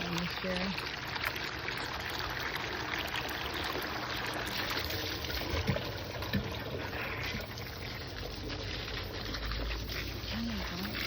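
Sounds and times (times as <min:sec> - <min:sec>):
water splashing onto plants: 0:07.4 - 0:11.0.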